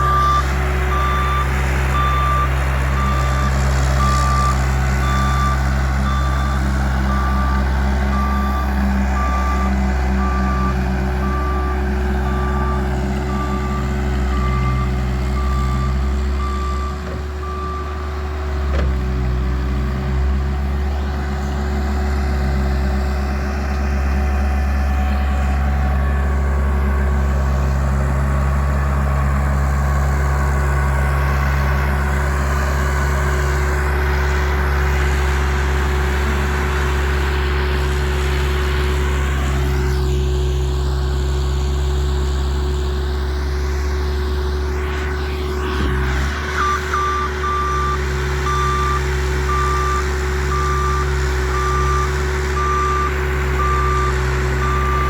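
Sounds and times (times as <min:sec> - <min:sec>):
reversing alarm beeping: 0:00.0 - 0:19.2, 0:44.6 - 0:55.0
diesel engine running: 0:00.0 - 0:55.0.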